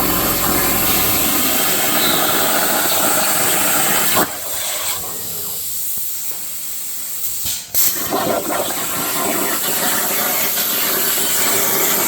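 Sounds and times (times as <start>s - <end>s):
plasma cutter hissing: 0.0s - 4.9s, 5.6s - 12.0s.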